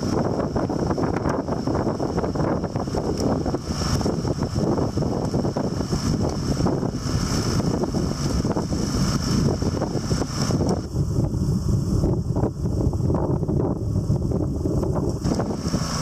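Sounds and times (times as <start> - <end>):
small engine running: 0.0 - 10.9, 14.8 - 16.0
wind buffeting microphone: 0.0 - 16.0.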